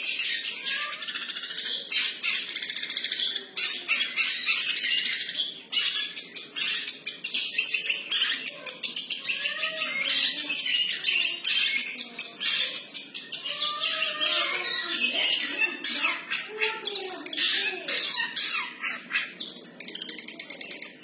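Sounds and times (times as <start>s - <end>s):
bird twittering song: 0.0s - 21.0s.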